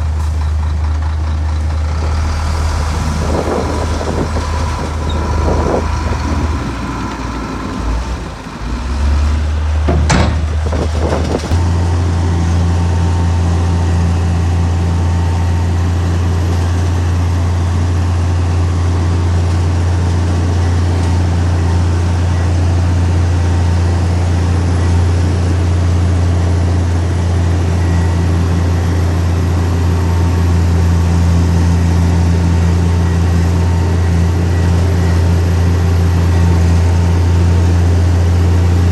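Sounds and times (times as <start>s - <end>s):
heavy diesel engine droning: 0.0s - 38.9s
sharp knocks: 9.9s - 11.7s.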